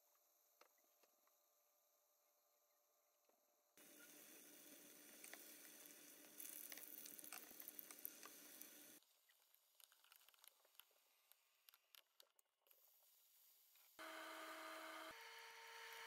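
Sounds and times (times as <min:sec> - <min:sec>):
tofu deep-frying in oil: 0:04.2 - 0:09.0
oil popping: 0:05.2 - 0:08.8.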